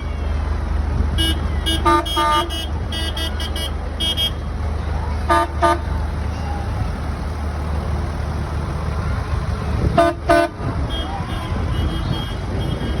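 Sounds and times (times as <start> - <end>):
engine running: 0.0 - 13.0
vehicle horn toots: 1.2 - 4.5, 5.3 - 5.9, 9.9 - 13.0.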